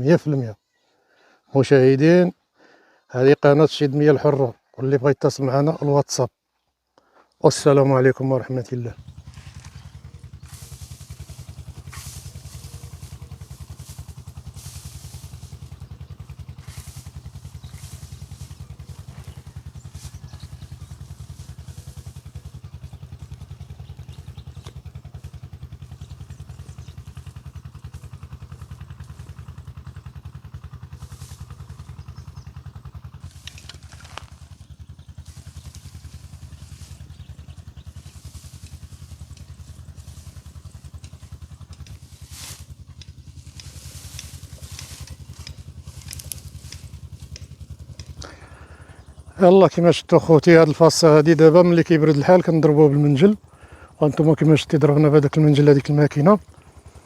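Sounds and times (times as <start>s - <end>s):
mowing machine engine running: 7.0s - 57.0s
rustling or clattering: 9.2s - 22.2s, 33.2s - 34.6s, 37.9s - 48.2s.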